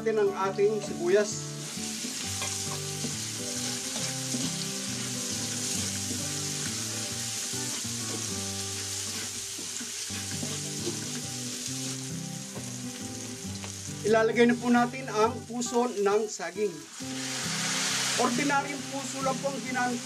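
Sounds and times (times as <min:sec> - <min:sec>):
onions sizzling in hot oil: 0:01.2 - 0:20.0
spatula scraping wok: 0:01.8 - 0:12.0.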